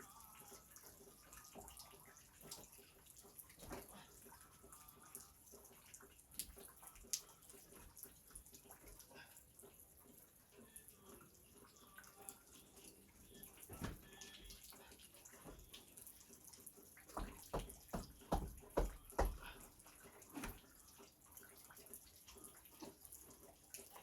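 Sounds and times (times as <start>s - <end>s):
dull knocks: 17.2s - 19.6s.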